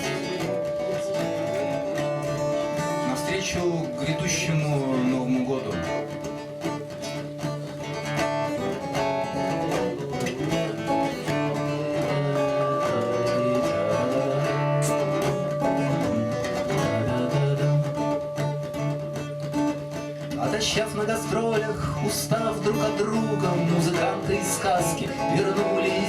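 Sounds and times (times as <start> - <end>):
acoustic guitar playing: 0.0 - 26.0.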